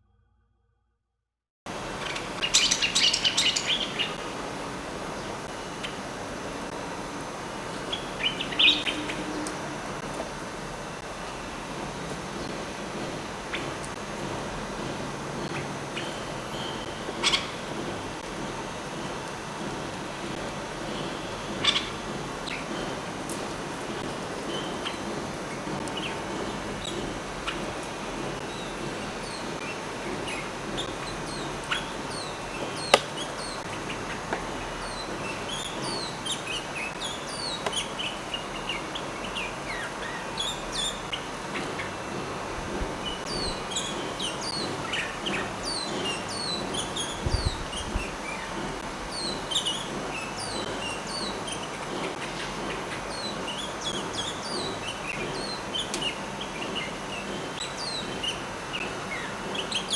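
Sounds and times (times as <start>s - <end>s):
bird song high falling notes: 2.4s - 4.2s.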